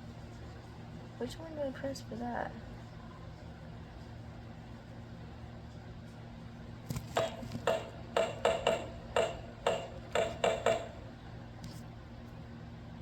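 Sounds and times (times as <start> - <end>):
metallic clangs and dings: 7.2 - 11.1.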